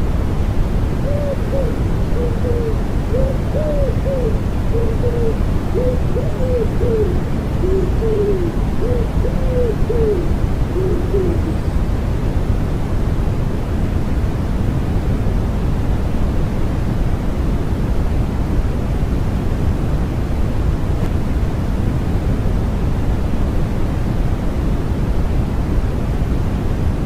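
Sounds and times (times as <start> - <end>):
rushing white noise: 0.0 - 27.0
wood pigeons cooing: 1.0 - 11.7.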